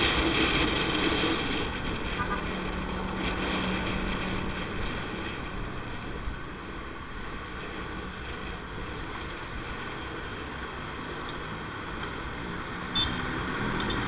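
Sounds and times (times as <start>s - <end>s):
vehicle road noise: 0.0s - 14.0s
wind on microphone: 0.0s - 14.0s.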